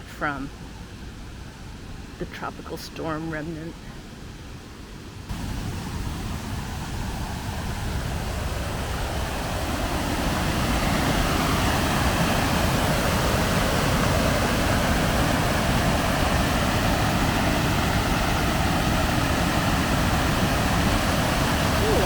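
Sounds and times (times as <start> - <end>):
waterfall rushing: 5.3 - 22.0.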